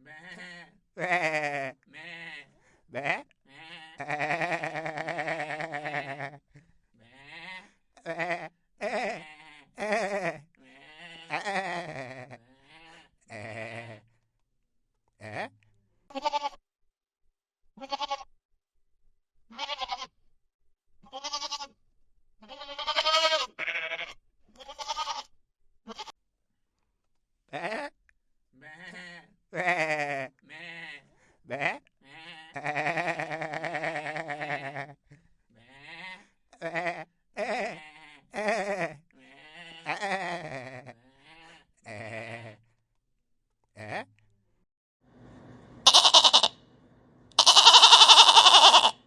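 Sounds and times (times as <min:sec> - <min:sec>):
goats bleating: 0:00.0 - 0:06.4, 0:07.0 - 0:14.0, 0:16.1 - 0:16.6, 0:17.8 - 0:18.3, 0:19.5 - 0:20.1, 0:21.0 - 0:21.7, 0:22.4 - 0:25.3, 0:27.6 - 0:27.9, 0:28.6 - 0:35.0, 0:35.7 - 0:42.6, 0:45.8 - 0:46.5, 0:47.4 - 0:49.0.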